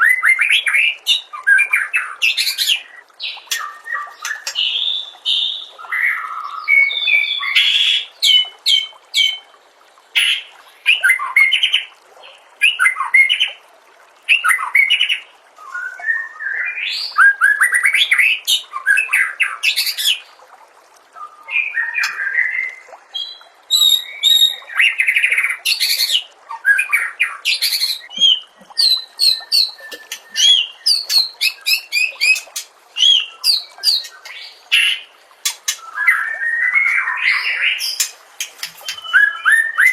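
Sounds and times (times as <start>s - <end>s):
songbird singing varied song: 38.7s - 39.9s.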